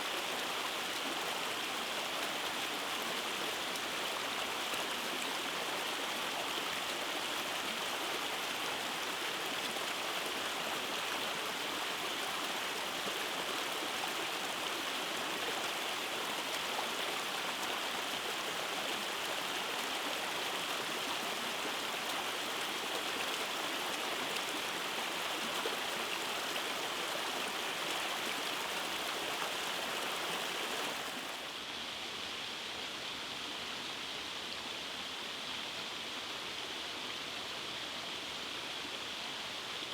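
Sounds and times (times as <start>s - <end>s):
creek rushing over cascades: 0.0s - 39.9s.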